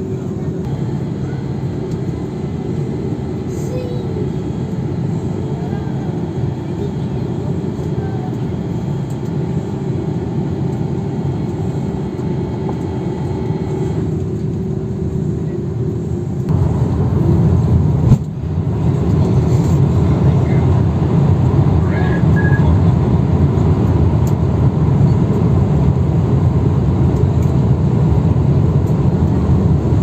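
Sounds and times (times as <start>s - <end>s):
jet cabin engine noise: 0.0s - 30.0s.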